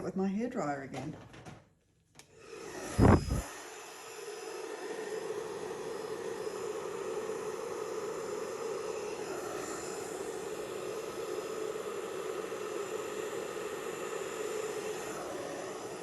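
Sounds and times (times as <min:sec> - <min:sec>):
hairdryer blowing: 0:02.2 - 0:16.0
loud thump: 0:03.0 - 0:03.4.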